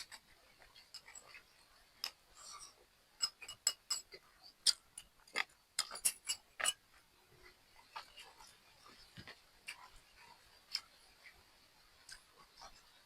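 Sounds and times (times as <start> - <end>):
chopsticks clinking against bowl: 0.0 - 7.0.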